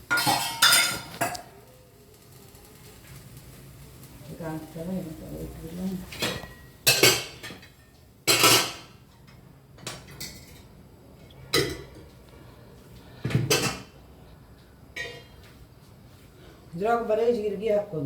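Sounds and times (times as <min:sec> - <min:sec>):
kitchenware clanking: 0:00.0 - 0:01.6, 0:06.0 - 0:12.2, 0:13.2 - 0:14.0, 0:14.9 - 0:15.4.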